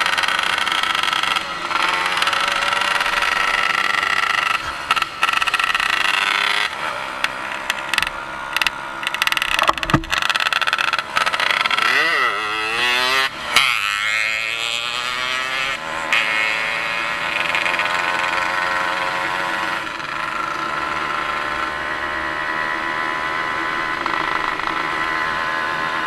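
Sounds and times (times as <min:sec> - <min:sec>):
vehicle engine idling: 0:00.0 - 0:12.6
brief knock: 0:09.4 - 0:10.2.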